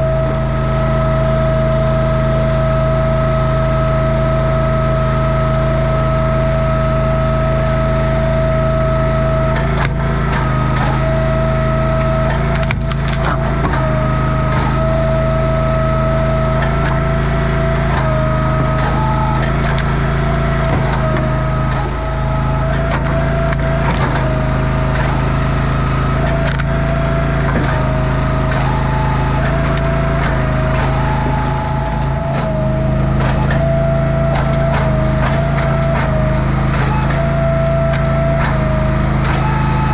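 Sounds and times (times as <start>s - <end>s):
small engine running: 0.0s - 39.9s
wood cracking and splintering: 11.8s - 39.9s.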